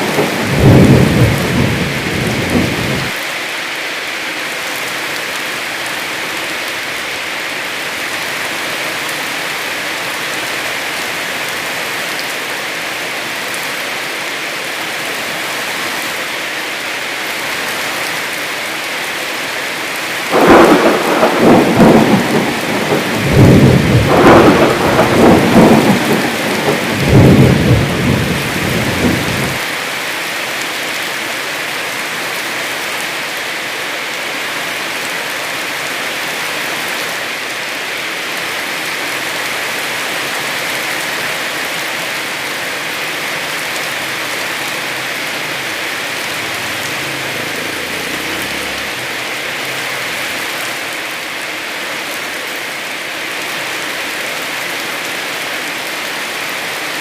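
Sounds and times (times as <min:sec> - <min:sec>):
thunder clap rolling: 0:00.0 - 0:03.2, 0:20.3 - 0:29.6
heavy rain falling: 0:00.0 - 0:57.0.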